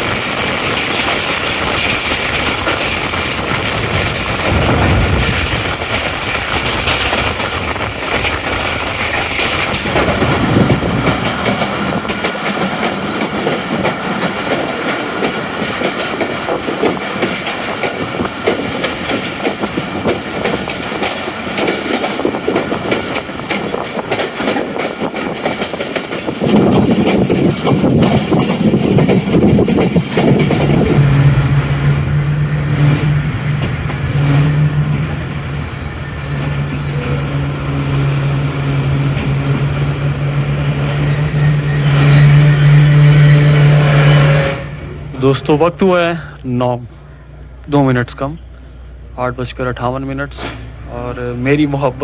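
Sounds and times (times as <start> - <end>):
train wheels clattering on rails: 0.0 - 47.6, 50.2 - 52.0
diesel locomotive drone: 0.0 - 52.0
loud rumble: 2.4 - 12.2, 26.5 - 41.2.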